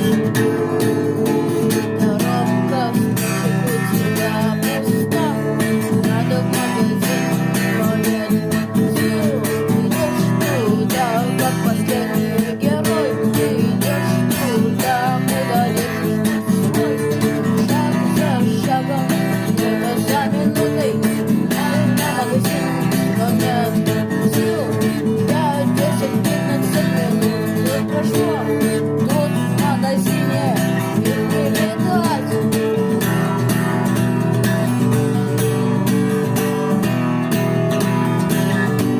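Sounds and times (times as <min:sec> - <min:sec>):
bass guitar: 0:00.0 - 0:38.9
lead guitar bending phrases: 0:00.0 - 0:38.9
strummed rhythm guitar: 0:00.0 - 0:38.9.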